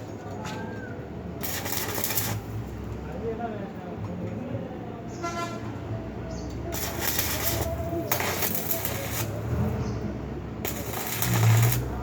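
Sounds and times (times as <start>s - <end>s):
welding arc crackling: 1.4s - 2.9s, 6.7s - 9.8s, 10.6s - 12.0s.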